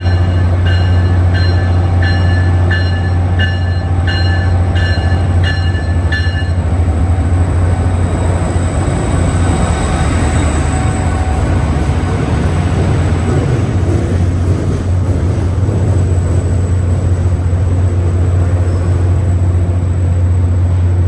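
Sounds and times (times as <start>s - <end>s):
locomotive bell ringing: 0.0s - 13.5s
locomotive engine drone: 0.0s - 21.0s.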